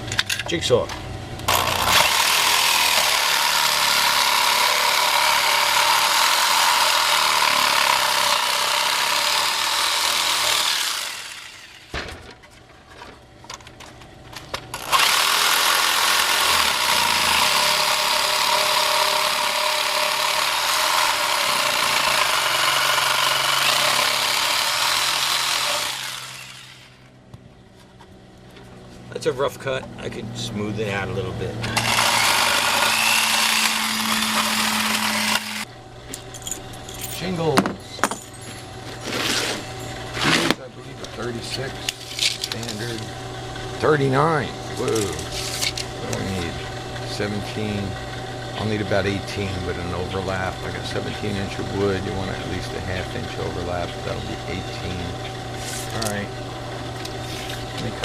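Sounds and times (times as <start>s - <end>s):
electric jigsaw cutting wood: 1.5s - 12.0s, 14.7s - 27.2s, 31.7s - 35.7s, 43.8s - 56.2s.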